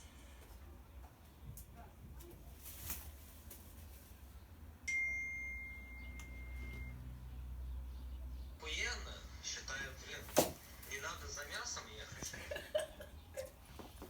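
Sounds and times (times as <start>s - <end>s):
high steady chime tone: 4.9s - 7.1s.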